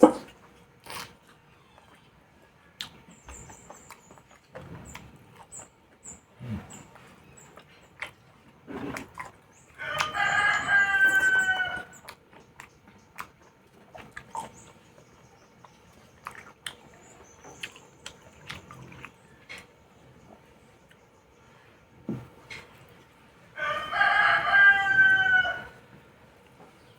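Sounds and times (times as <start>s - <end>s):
wet eating clicks and smacks: 0.1s - 2.0s, 2.8s - 10.8s, 11.8s - 19.9s
rooster crowing: 9.8s - 12.0s, 23.6s - 25.8s.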